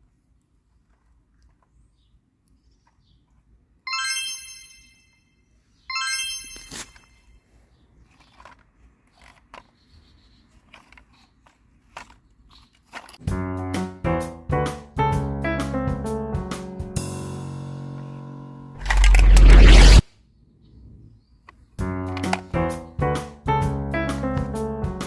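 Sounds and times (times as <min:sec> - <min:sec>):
electronic chime tones: 0:03.9 - 0:05.2, 0:05.9 - 0:07.2
sharp click: 0:18.8 - 0:20.0.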